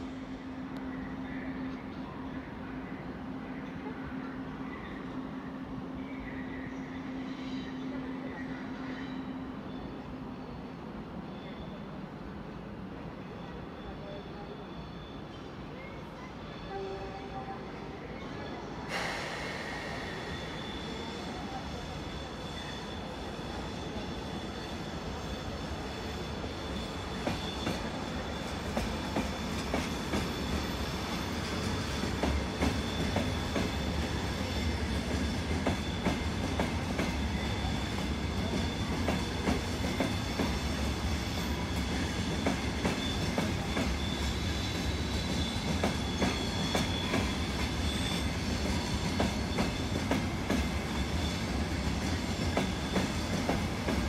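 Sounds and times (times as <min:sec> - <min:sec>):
low train rumble: 0:00.0 - 0:54.0
high wheel squeal: 0:18.9 - 0:54.0.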